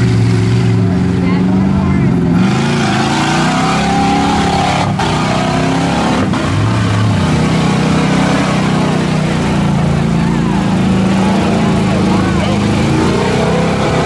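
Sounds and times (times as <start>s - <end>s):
truck engine revving hard: 0.0s - 14.0s.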